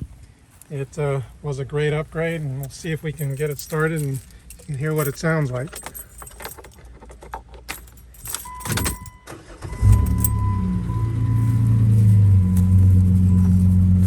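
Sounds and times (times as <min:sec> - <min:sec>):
keys rattling and clicking: 0:02.1 - 0:14.0
car engine idling: 0:08.0 - 0:14.0
short steady beep: 0:08.4 - 0:13.6.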